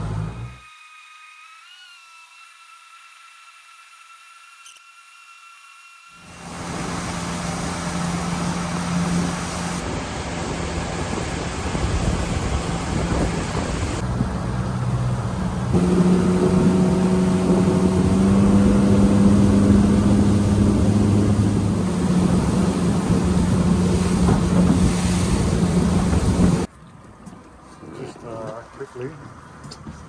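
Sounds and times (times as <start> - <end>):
wind: 0.0 - 30.0
outboard motor running: 6.2 - 26.7
water noise: 6.2 - 26.7.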